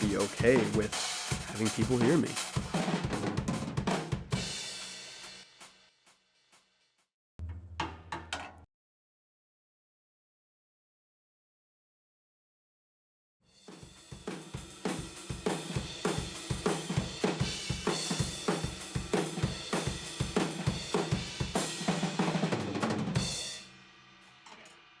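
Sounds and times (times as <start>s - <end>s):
cymbals ringing out: 0.0s - 2.7s
drum kit played hard: 0.0s - 5.8s, 13.6s - 23.8s.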